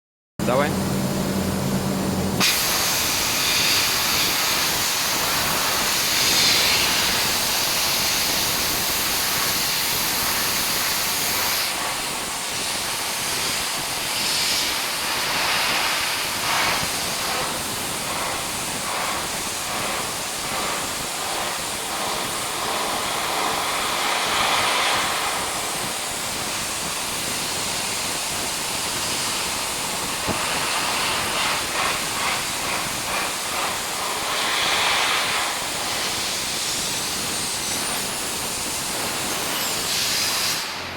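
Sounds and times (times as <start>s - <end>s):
dry-ice blaster hissing: 2.3s - 40.9s.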